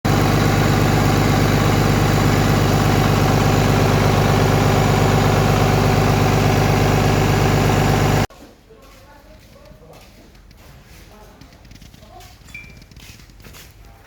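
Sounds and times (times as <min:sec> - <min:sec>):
diesel engine idling: 0:00.1 - 0:08.3.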